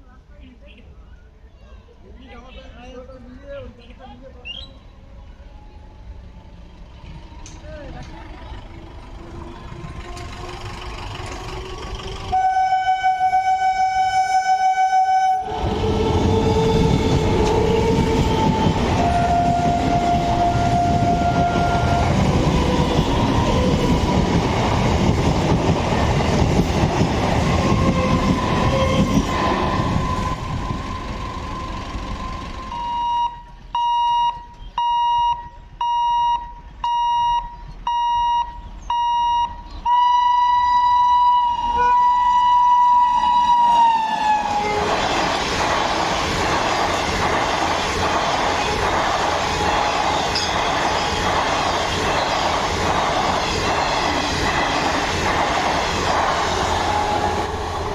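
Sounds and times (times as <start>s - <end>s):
train rumbling and rattling: 2.9s - 33.8s, 41.0s - 57.9s
train horn: 12.3s - 22.4s, 27.7s - 31.4s, 39.9s - 45.0s, 56.8s - 57.9s
high warning tone beeping: 30.0s - 43.9s.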